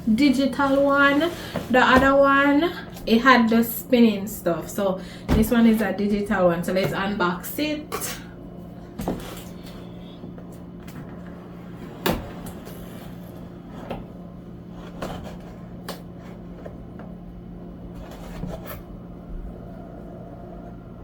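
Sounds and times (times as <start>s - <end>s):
cardboard packaging rubbing and scraping: 17.9s - 18.9s.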